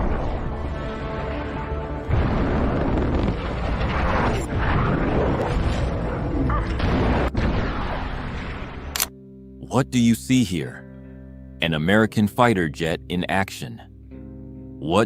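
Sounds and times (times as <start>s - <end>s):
blast-like booms: 0.0s - 9.0s.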